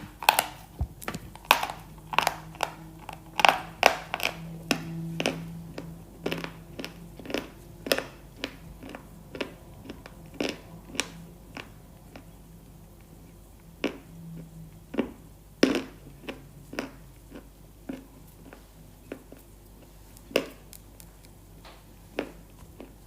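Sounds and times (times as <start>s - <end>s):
crunching bites: 0.0s - 12.2s
chewing clicks: 0.0s - 23.0s.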